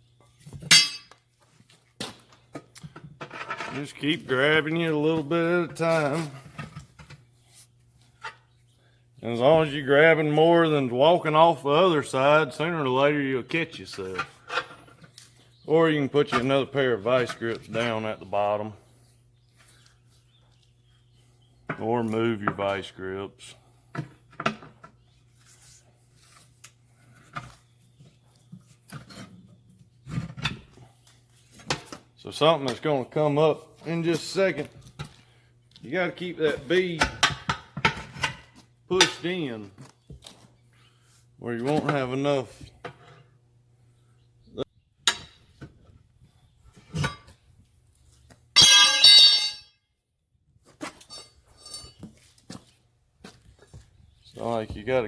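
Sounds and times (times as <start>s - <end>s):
hand tools knocking and scraping: 0.5s - 1.3s, 48.6s - 49.7s
metal tool clanging on wheel rim: 0.6s - 1.2s, 47.0s - 47.4s, 48.6s - 49.8s, 50.8s - 52.2s.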